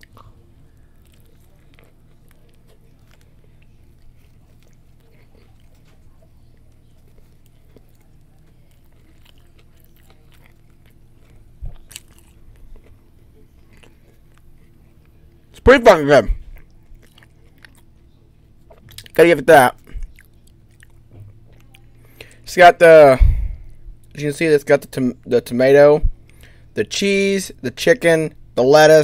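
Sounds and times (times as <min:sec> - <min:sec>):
wet mouth clicks: 0:00.0 - 0:00.4
chewing sandwich: 0:00.0 - 0:22.5
low steady hum: 0:00.0 - 0:29.0.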